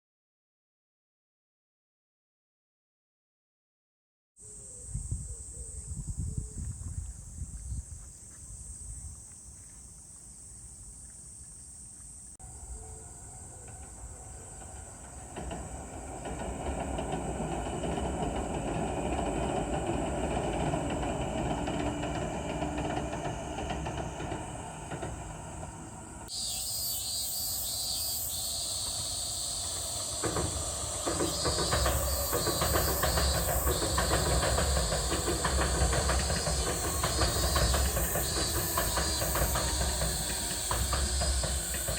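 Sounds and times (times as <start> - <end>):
train rumbling: 12.4 - 41.9
train wheels clattering over bridge: 13.4 - 41.9
hiss: 21.7 - 41.9.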